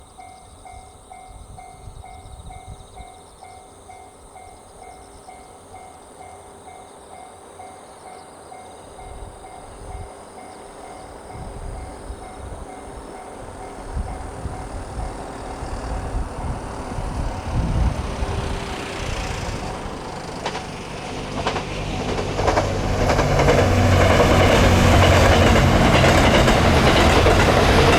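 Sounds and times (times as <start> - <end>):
train rumble: 8.3 - 27.9.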